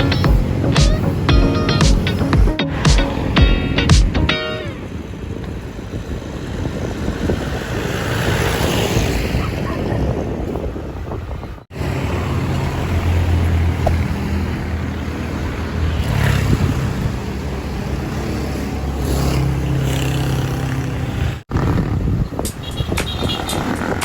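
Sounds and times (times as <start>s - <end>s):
wind rushing over microphone: 4.8s - 18.3s, 21.3s - 24.0s.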